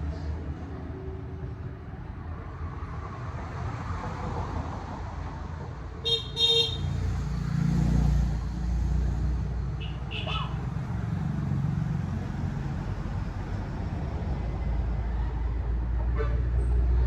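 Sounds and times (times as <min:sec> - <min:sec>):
engine and road noise: 0:00.0 - 0:17.0
vehicle horn beeps: 0:06.1 - 0:06.9.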